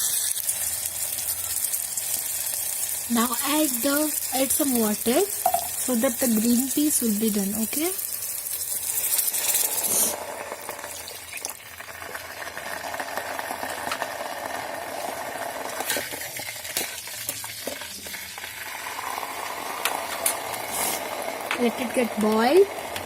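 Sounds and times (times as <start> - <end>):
curry sizzling in a hot pan: 0.0 - 23.0
spoon knocking pan: 5.3 - 6.6.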